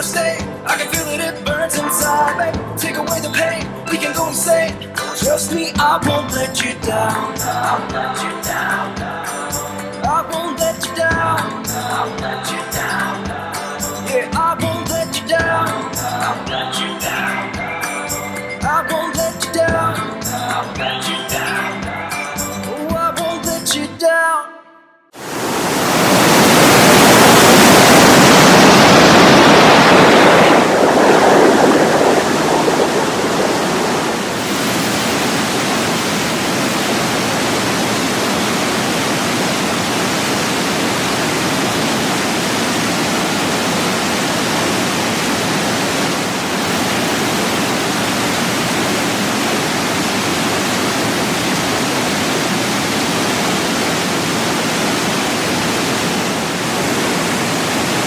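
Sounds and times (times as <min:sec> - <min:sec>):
waterfall pouring: 0:25.2 - 0:58.0.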